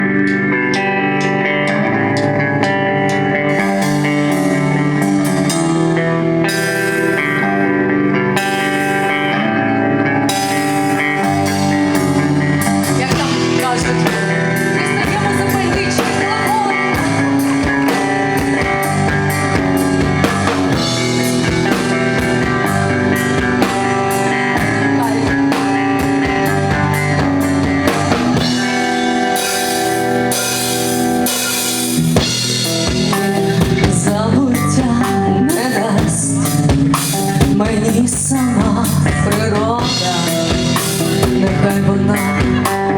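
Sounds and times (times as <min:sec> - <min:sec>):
electric guitar chords: 0:00.0 - 0:42.9
drum kit hits: 0:10.3 - 0:34.2.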